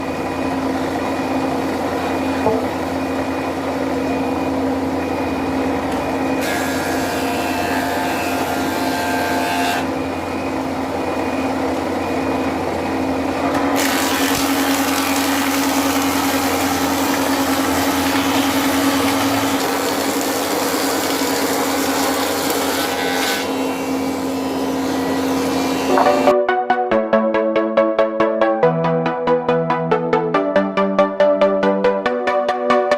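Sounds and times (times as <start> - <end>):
woodworking machine cutting wood: 0.0 - 26.3.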